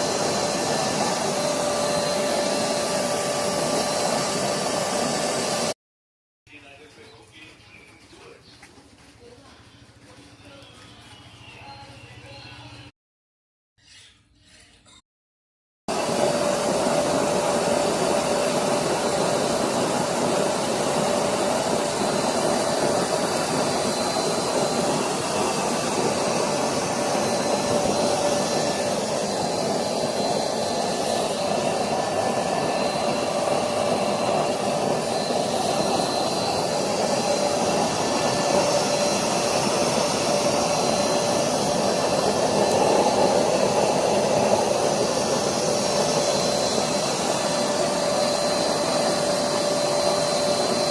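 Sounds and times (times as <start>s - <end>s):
furnace blower rushing noise: 0.0s - 5.8s, 15.9s - 50.9s.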